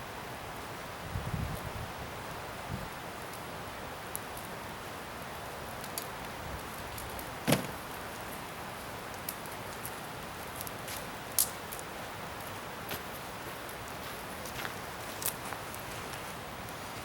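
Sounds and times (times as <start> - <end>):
bonfire crackling and popping: 3.3 - 16.8.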